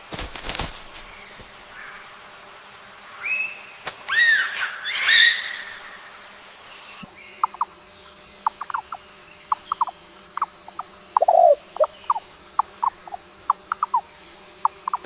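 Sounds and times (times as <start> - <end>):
bird squealing call: 4.1 - 5.8
bird chirping: 6.9 - 15.0.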